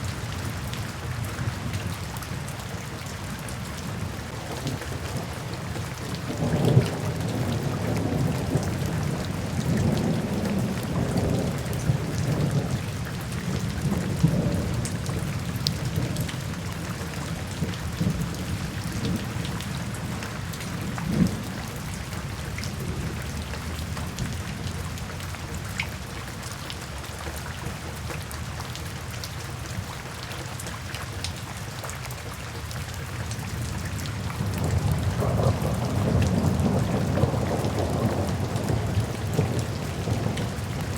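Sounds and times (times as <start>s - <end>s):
steady rain: 0.0s - 40.9s
low rolling thunder: 6.0s - 21.9s, 33.5s - 40.9s.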